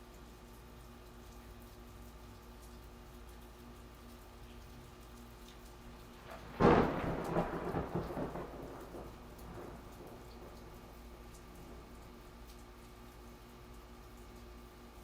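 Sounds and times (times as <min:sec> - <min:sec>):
light rain: 0:00.0 - 0:15.0
thunderclap and rumbling: 0:06.2 - 0:12.3.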